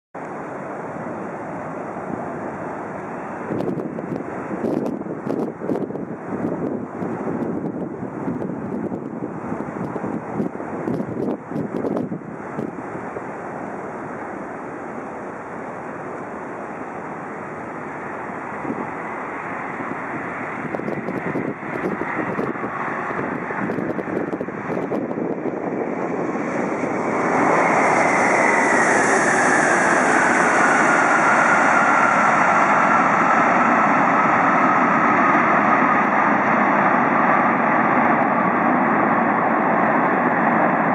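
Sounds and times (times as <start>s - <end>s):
jet engine rushing noise: 0.2s - 40.9s
jet engine whine: 0.2s - 40.9s.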